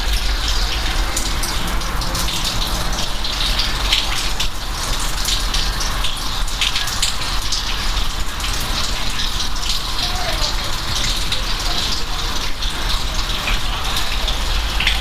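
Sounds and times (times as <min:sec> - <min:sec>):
low rumble: 0:00.0 - 0:05.1
rain drops splashing: 0:00.0 - 0:15.0.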